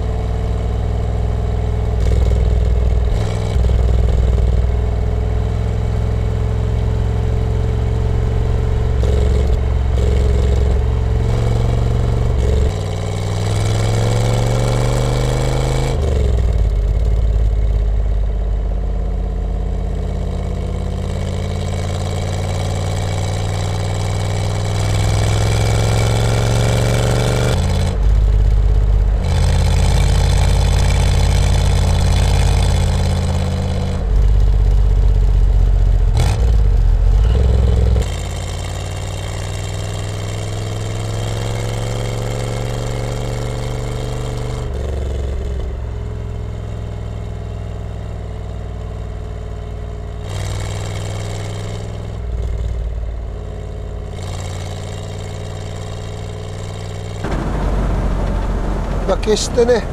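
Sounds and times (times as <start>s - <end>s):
car engine running from inside cabin: 57.2s - 59.9s.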